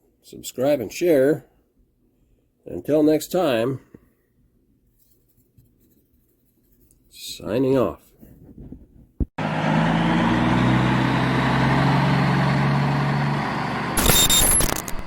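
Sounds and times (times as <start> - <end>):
diesel truck engine idling: 9.4 - 14.0
harsh noise with high whistle: 14.0 - 15.0.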